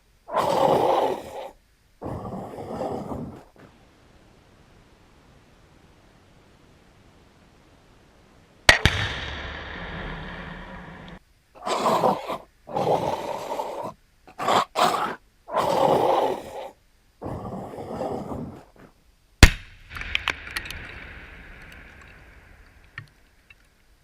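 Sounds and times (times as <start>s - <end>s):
growl and roar sound effects: 0.3s - 3.6s, 11.6s - 18.8s
sharp crack with rumble: 8.7s - 11.2s, 19.4s - 23.3s.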